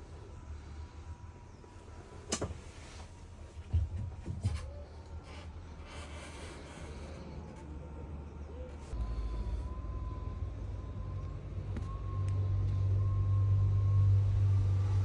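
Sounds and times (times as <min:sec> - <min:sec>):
diesel engine idling: 0:07.4 - 0:14.8.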